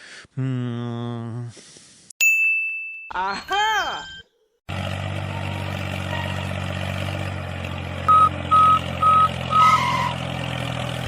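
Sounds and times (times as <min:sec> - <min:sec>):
vehicle engine running: 0:04.7 - 0:11.0
reversing alarm beeps: 0:08.1 - 0:09.8.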